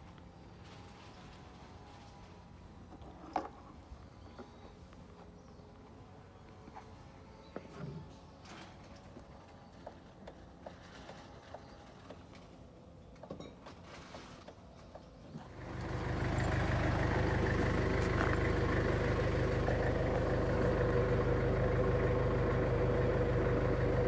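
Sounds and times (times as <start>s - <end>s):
vehicle engine idling: 15.4s - 24.0s.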